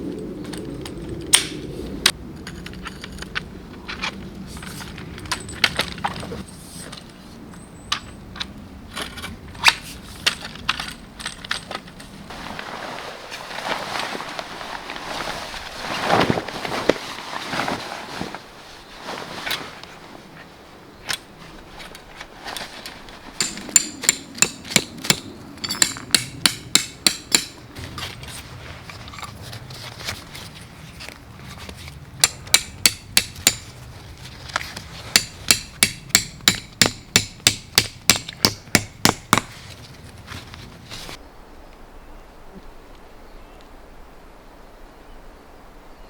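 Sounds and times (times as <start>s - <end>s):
hammer striking with ringing blows: 23.4s - 27.6s, 32.2s - 33.7s, 35.2s - 39.5s.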